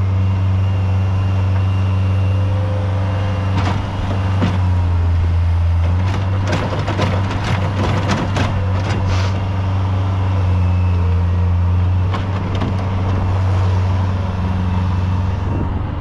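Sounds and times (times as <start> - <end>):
heavy machine engine running: 0.0 - 16.0
knocks and scrapes: 5.8 - 9.5.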